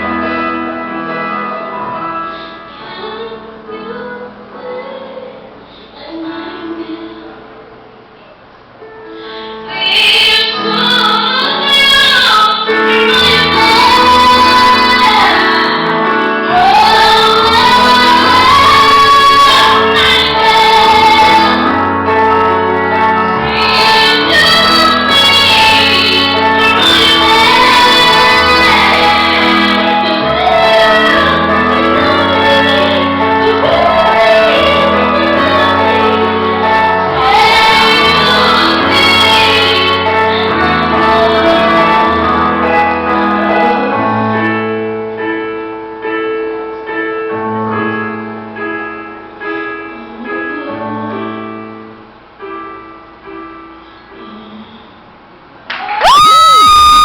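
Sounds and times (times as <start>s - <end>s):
piano chords: 0.0s - 57.0s
woman singing a pop ballad: 2.4s - 7.4s, 9.3s - 44.5s.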